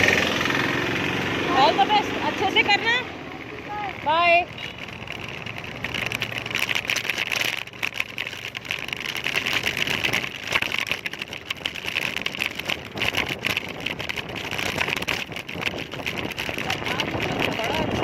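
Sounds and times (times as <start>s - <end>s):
road and traffic noise: 0.0s - 18.0s
wind buffeting microphone: 9.8s - 18.0s.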